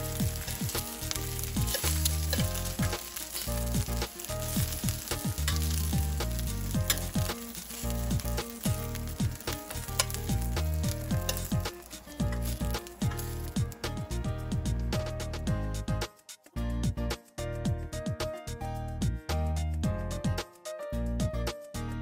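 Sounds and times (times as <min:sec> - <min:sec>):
shrimp frying in hot oil: 0:00.0 - 0:15.4
background music with bass beat: 0:00.0 - 0:22.0
metal tongs clicking against pan: 0:00.3 - 0:13.5.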